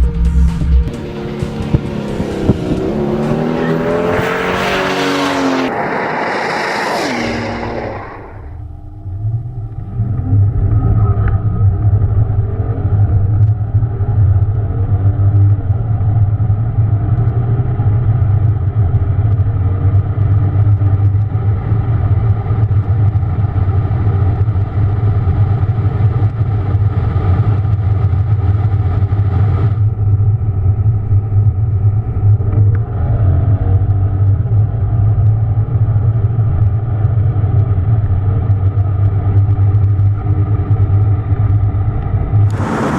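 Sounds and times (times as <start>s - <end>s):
car engine droning: 0.0s - 42.9s.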